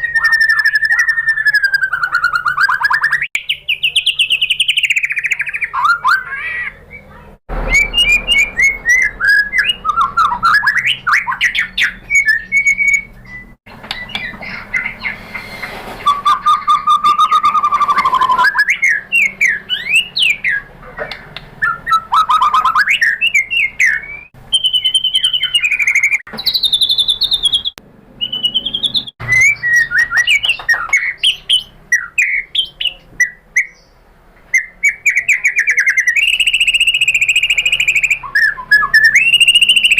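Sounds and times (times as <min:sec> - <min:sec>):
bird song whistles and trills: 0:00.0 - 0:39.9.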